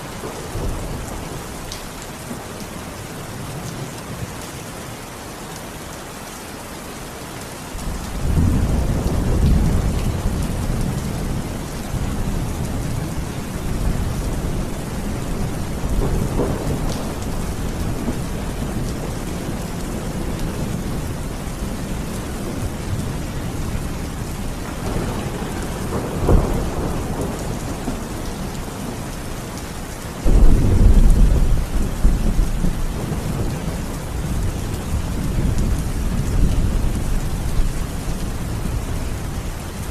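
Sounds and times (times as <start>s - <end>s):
heavy rain: 0.0s - 39.9s
sharp thunderclap: 7.8s - 14.6s, 24.8s - 28.9s, 30.2s - 34.5s
rolling thunder: 7.8s - 29.4s, 30.2s - 39.3s.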